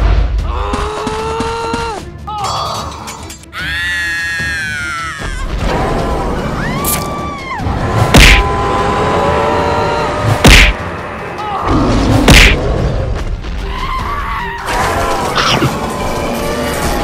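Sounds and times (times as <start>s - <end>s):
background music: 0.0s - 17.0s
cartoon impact thuds: 12.3s - 12.6s.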